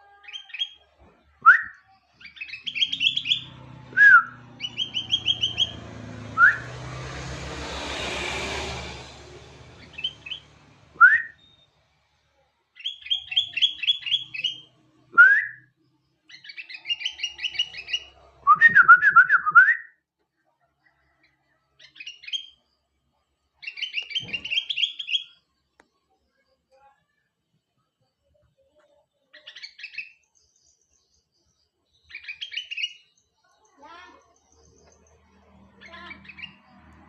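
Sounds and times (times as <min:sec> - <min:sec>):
bird singing and chattering: 0:00.1 - 0:05.9, 0:09.8 - 0:10.5, 0:12.8 - 0:15.3, 0:16.0 - 0:18.2, 0:23.6 - 0:25.5, 0:29.2 - 0:36.8.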